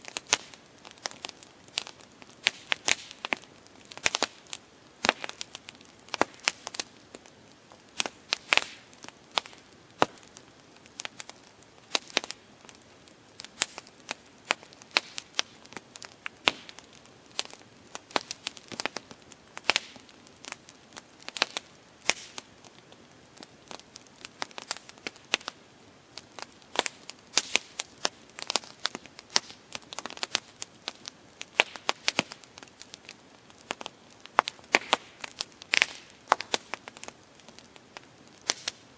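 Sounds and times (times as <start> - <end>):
campfire crackling and popping: 0.0 - 38.9
soft steady hiss: 0.0 - 38.9.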